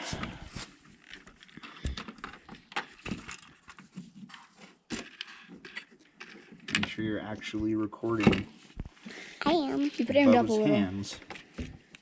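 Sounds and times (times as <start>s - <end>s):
objects clicking and knocking: 0.1s - 8.5s.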